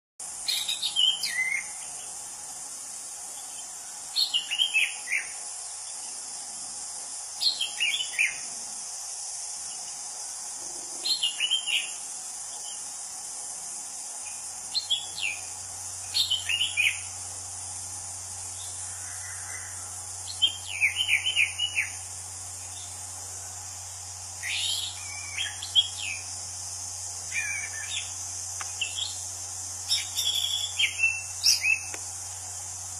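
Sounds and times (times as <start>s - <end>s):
insects hissing: 0.2s - 32.9s.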